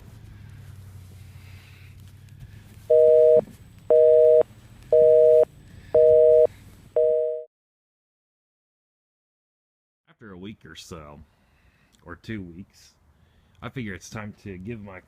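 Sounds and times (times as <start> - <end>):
telephone busy signal beeps: 2.9 - 7.5.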